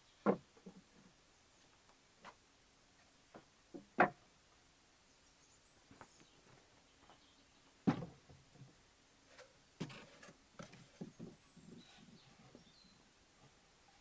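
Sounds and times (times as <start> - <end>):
faint high bird chirps: 11.1 - 13.1.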